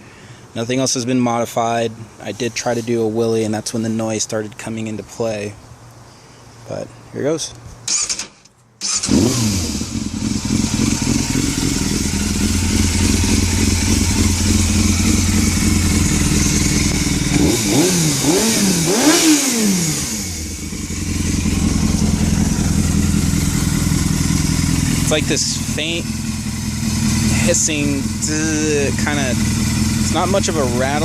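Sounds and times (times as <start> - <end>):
motorcycle engine idling and revving: 8.8 - 31.0.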